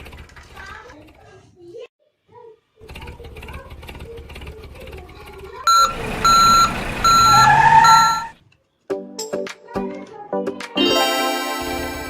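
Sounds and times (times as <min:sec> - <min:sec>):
mechanical rumble with fast ticking: 0:02.8 - 0:08.3
truck engine running: 0:02.8 - 0:08.4
truck reversing alarm beeps: 0:05.7 - 0:08.4.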